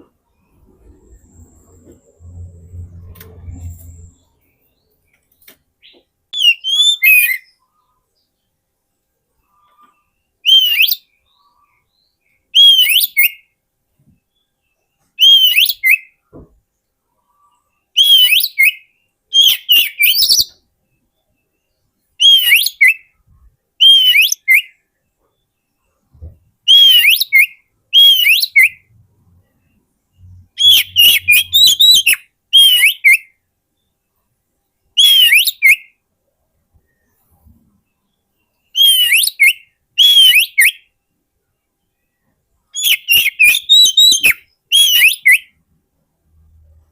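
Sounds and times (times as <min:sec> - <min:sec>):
magpie-robin singing whistled phrases: 0:05.8 - 0:07.6, 0:10.3 - 0:13.6, 0:15.2 - 0:16.2, 0:17.9 - 0:21.6, 0:22.2 - 0:23.2, 0:23.8 - 0:24.8, 0:26.6 - 0:28.9, 0:30.2 - 0:33.4, 0:35.0 - 0:36.0, 0:38.7 - 0:41.0, 0:42.7 - 0:45.6.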